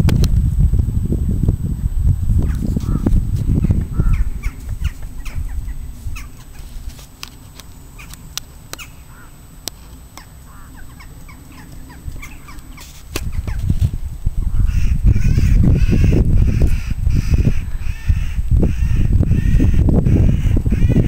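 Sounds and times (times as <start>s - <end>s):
low rumble: 0.0s - 20.4s
birds chirping: 2.4s - 13.7s, 14.4s - 21.0s
sharp clicks: 7.0s - 8.9s.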